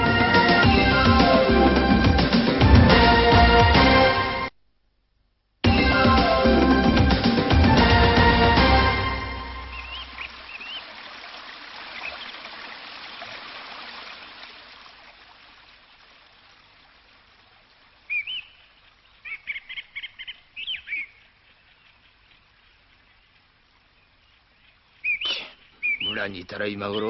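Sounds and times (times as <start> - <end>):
birds chirping: 9.6 - 11.0, 11.8 - 12.8, 18.0 - 27.0
soft rushing hiss: 9.7 - 26.9.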